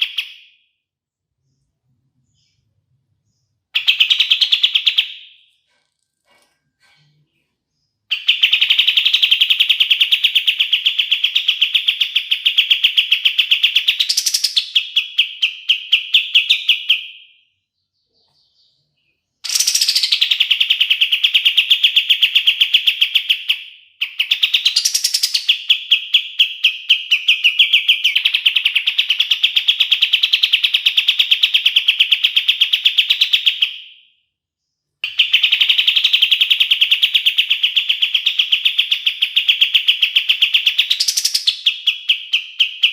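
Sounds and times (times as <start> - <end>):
songbird trilling: 19.4 - 21.6, 35.0 - 42.9.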